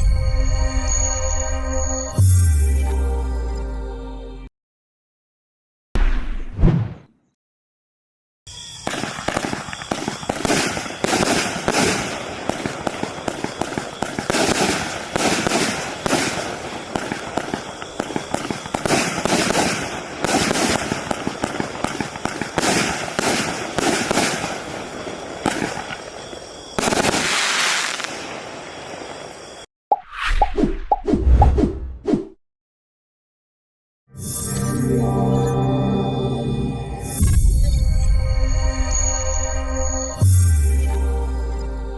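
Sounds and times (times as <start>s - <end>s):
firework crackle: 8.6s - 29.6s
firework barrage shots: 8.7s - 29.4s.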